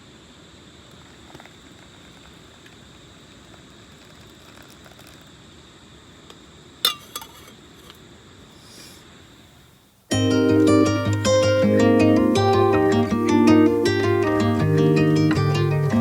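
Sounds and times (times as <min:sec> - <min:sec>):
faint steady hiss: 0:00.0 - 0:16.0
thin high whine: 0:06.8 - 0:16.0.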